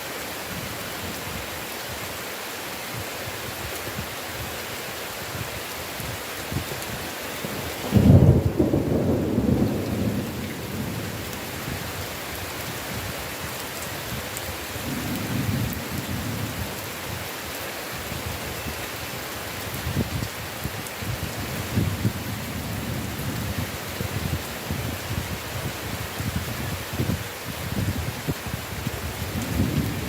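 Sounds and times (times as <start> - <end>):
heavy rain falling: 0.0 - 30.0
thunder clap and rumble: 7.8 - 11.8, 14.8 - 16.8, 29.0 - 30.0.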